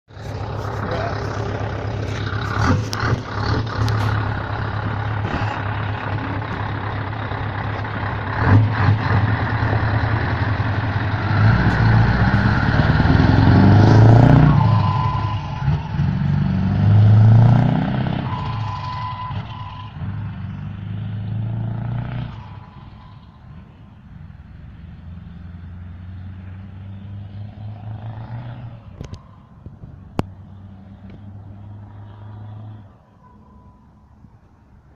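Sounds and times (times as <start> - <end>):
truck engine revving: 0.1 - 32.9.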